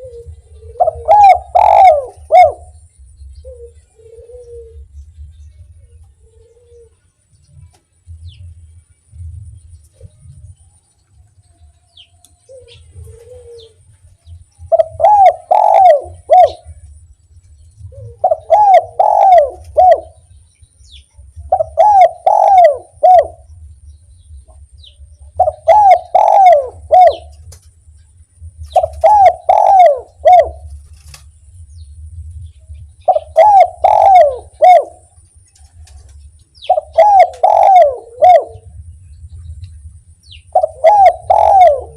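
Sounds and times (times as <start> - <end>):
dove cooing: 0.0 - 2.8, 3.4 - 5.0, 5.9 - 7.0, 12.5 - 13.9, 14.6 - 17.0, 17.8 - 20.3, 21.4 - 23.6, 25.2 - 27.5, 28.7 - 31.1, 33.0 - 38.8, 40.3 - 41.9
faint low hum: 0.0 - 41.9.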